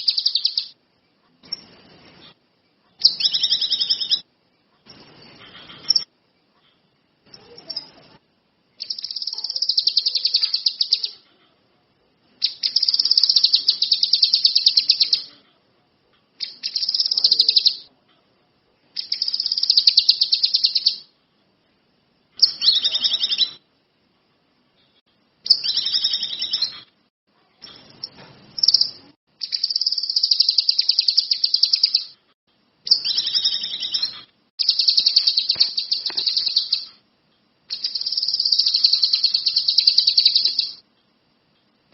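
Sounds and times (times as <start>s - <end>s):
songbird trilling: 0.0s - 0.8s, 3.0s - 4.2s, 8.8s - 11.2s, 12.4s - 15.3s, 16.4s - 17.9s, 19.0s - 21.1s, 22.4s - 23.6s, 25.5s - 26.8s, 27.9s - 32.2s, 32.9s - 36.9s, 37.7s - 40.8s.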